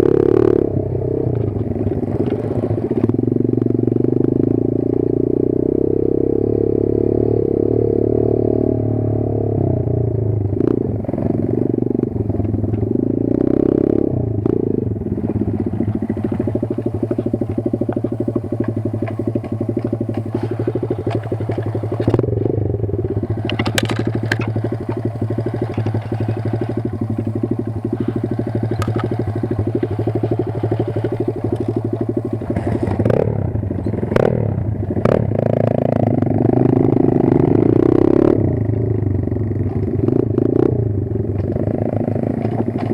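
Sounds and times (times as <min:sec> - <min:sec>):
motorbike engine revving: 0:00.0 - 0:42.9
sharp knocks from bike: 0:15.2 - 0:22.4, 0:23.3 - 0:33.2.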